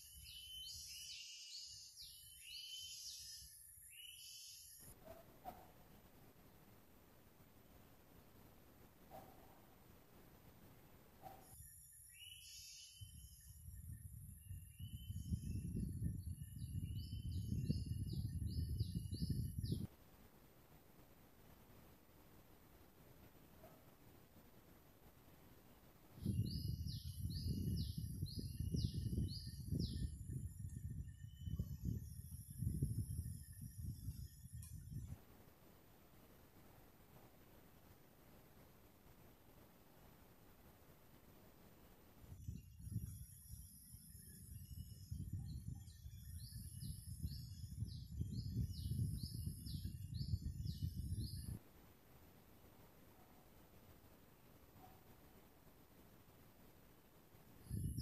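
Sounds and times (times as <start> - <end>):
bird chirping: 0.0 - 6.7, 11.2 - 19.9, 26.1 - 35.2.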